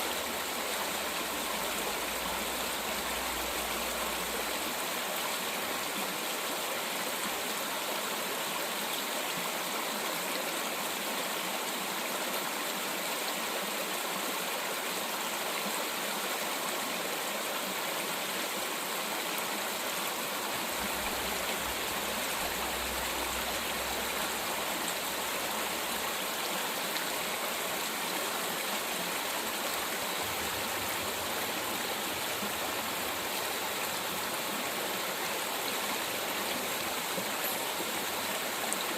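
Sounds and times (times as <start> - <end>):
mountain stream flowing: 0.0 - 38.9.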